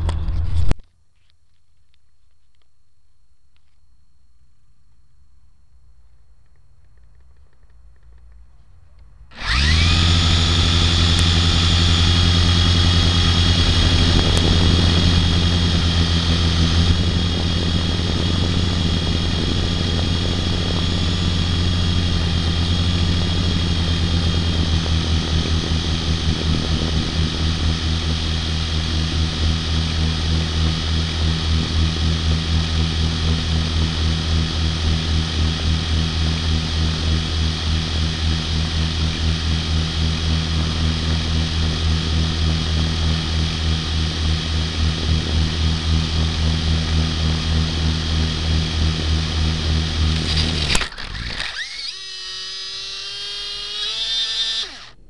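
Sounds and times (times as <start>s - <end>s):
toy helicopter motor whining: 9.3s - 55.0s.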